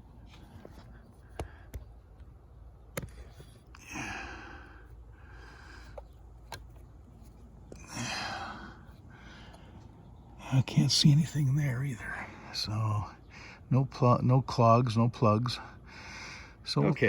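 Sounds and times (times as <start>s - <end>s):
person breathing: 3.3s - 6.2s, 7.8s - 10.0s, 15.7s - 16.6s.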